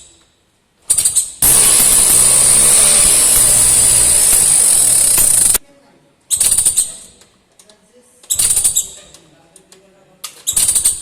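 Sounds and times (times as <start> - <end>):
scooter engine revving: 1.4 - 5.6.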